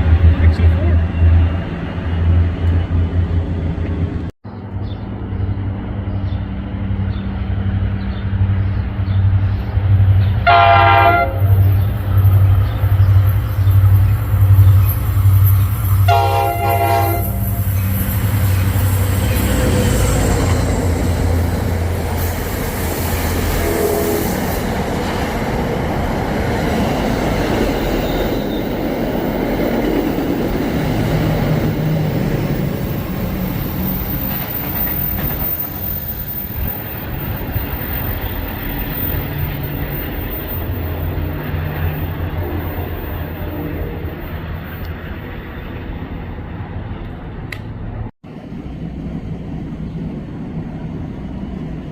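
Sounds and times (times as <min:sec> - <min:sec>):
diesel locomotive engine running: 0:00.0 - 0:45.6
locomotive horn blasts: 0:10.4 - 0:11.6, 0:16.1 - 0:17.6, 0:23.5 - 0:24.4
train wheels clattering on rails: 0:24.3 - 0:42.0.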